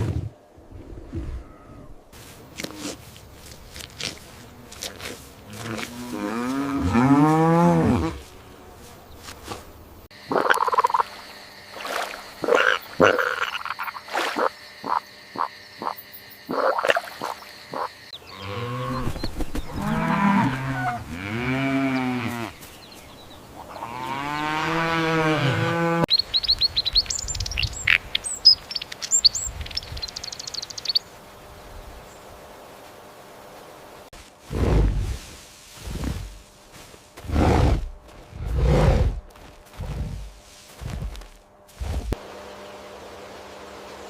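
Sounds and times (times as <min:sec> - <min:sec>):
short croaking calls: 0:10.2 - 0:19.0.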